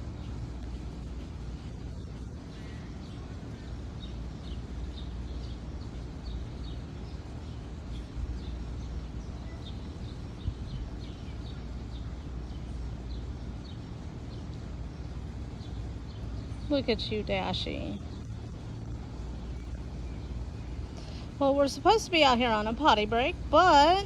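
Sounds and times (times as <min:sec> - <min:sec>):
low outdoor rumble: 0:00.0 - 0:24.0
small birds chirping: 0:00.0 - 0:24.0.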